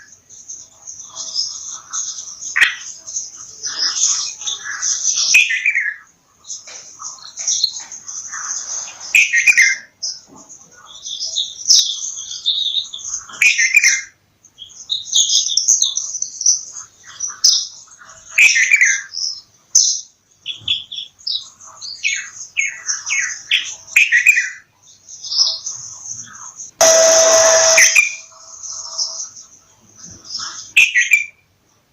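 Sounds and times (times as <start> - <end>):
loud falling bird call: 26.8 - 28.2.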